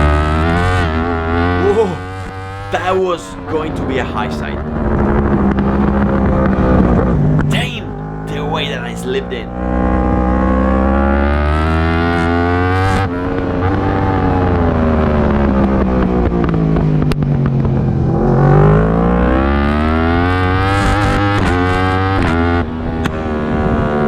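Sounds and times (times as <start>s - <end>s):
motorcycle engine at racing speed: 9.6s - 24.0s.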